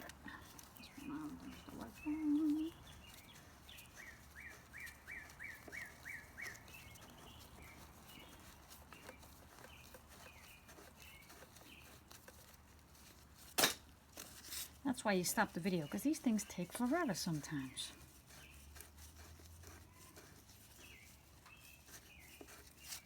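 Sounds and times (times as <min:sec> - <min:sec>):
small bird chirping: 0:00.0 - 0:12.4, 0:19.8 - 0:23.0.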